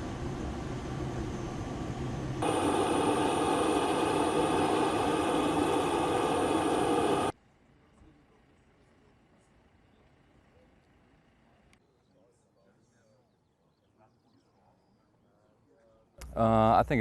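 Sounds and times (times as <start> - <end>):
aircraft engine whining: 0.0 - 7.4.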